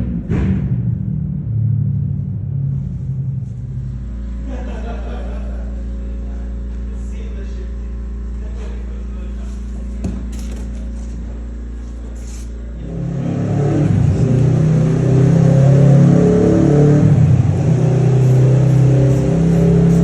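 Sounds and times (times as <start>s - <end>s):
motorcycle engine revving: 9.4s - 20.0s.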